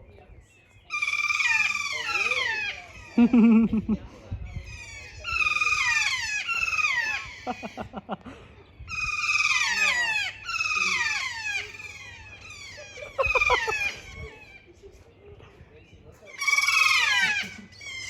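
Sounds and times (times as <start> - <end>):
bird squealing calls: 0.9 - 3.5, 4.6 - 8.1, 8.9 - 14.7, 16.3 - 18.0.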